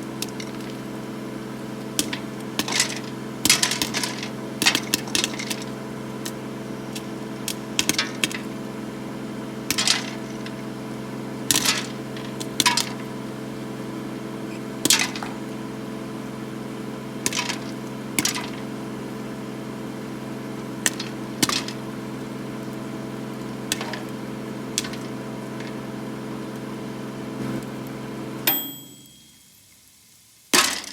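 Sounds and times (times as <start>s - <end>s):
microwave oven humming: 0.0s - 29.7s
popcorn kernels popping: 0.2s - 0.8s, 1.8s - 8.5s, 9.6s - 10.6s, 11.5s - 13.1s, 14.8s - 15.6s, 17.2s - 18.7s, 20.8s - 21.8s, 23.5s - 25.9s, 30.5s - 30.9s
microwave beep: 14.4s - 16.1s, 25.1s - 29.6s.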